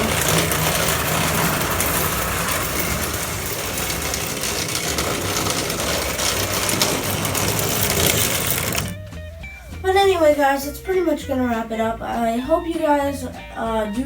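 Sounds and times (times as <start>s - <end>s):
toy train motor whirring: 0.0s - 9.0s
wheels rolling on metal rails: 0.0s - 9.3s.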